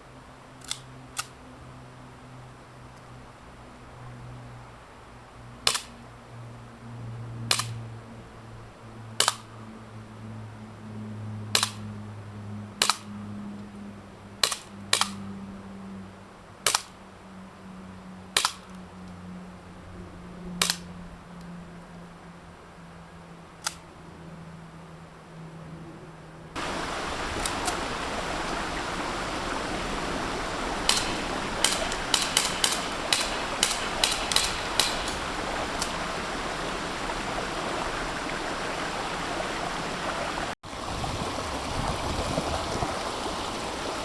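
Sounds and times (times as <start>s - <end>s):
low background hum: 0.0s - 40.6s
airsoft pistol shots: 5.7s - 6.0s, 7.5s - 7.8s, 9.2s - 9.5s, 11.6s - 11.8s, 12.8s - 13.1s, 14.4s - 15.2s, 16.7s - 17.0s, 18.4s - 18.7s, 30.5s - 36.1s.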